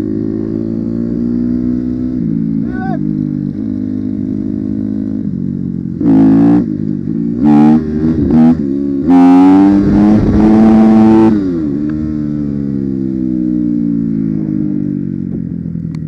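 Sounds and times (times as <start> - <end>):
dirt bike engine revving: 6.0 - 13.0.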